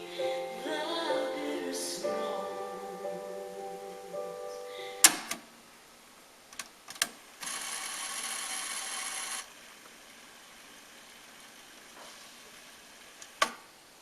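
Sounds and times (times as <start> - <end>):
music: 0.0 - 5.1.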